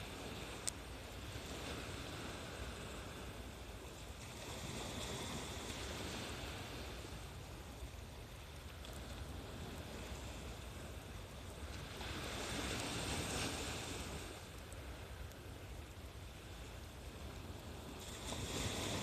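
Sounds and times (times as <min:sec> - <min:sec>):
sea waves washing onto shore: 0:00.0 - 0:19.0
wind on microphone: 0:16.4 - 0:19.0.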